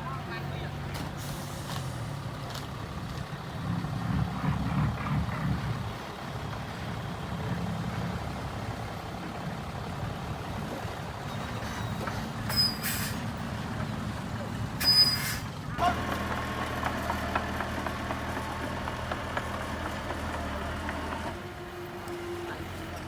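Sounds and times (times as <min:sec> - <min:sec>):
heavy machinery diesel engine running: 0:00.1 - 0:12.7, 0:15.6 - 0:23.0.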